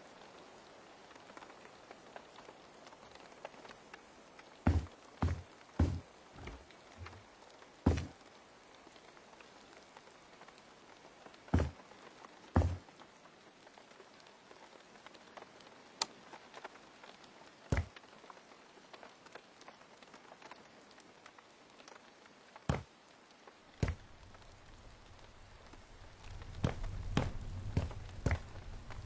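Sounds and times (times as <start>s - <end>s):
sharp taps and knocks: 4.7s - 7.2s, 7.9s - 8.2s, 11.6s - 11.8s, 12.6s - 12.8s, 23.8s - 24.5s, 26.2s - 29.0s.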